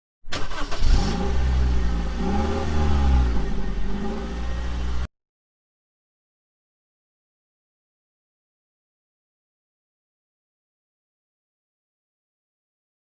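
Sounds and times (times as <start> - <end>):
motorcycle engine revving: 0.5 - 5.1.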